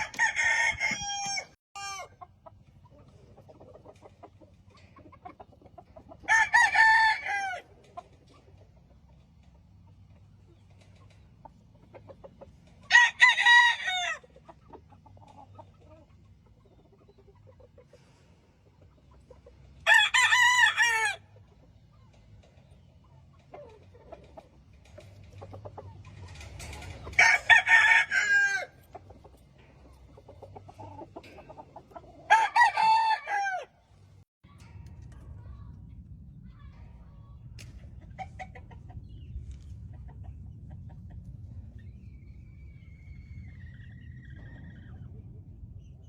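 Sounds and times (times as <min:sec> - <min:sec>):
rooster crowing: 0:00.0 - 0:02.1, 0:06.3 - 0:07.6, 0:12.9 - 0:14.2, 0:27.2 - 0:28.8, 0:32.3 - 0:33.8.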